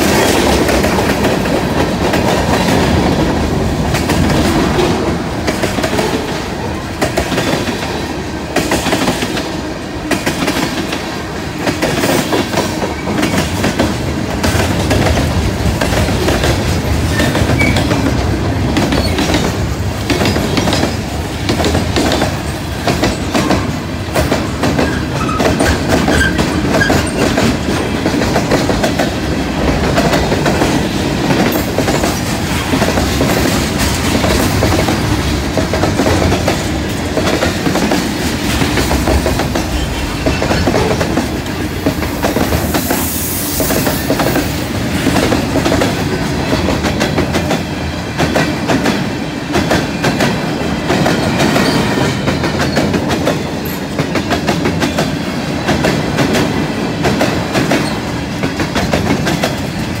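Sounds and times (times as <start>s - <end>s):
freight train rolling past: 0.0s - 60.0s.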